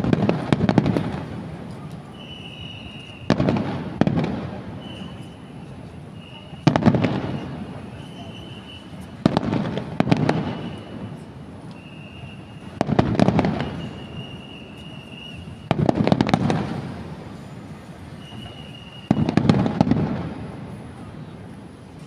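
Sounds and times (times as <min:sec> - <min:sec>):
firework shells booming: 0:00.0 - 0:05.2, 0:06.2 - 0:17.4, 0:18.1 - 0:20.8
firework crackling: 0:00.0 - 0:22.0
high whistle: 0:01.8 - 0:03.6, 0:04.7 - 0:09.2, 0:10.3 - 0:15.8, 0:17.4 - 0:19.5.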